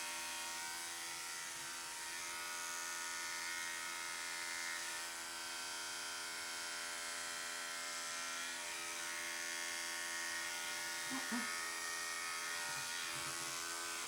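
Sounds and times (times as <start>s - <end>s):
electric clippers buzzing: 0.0s - 14.0s.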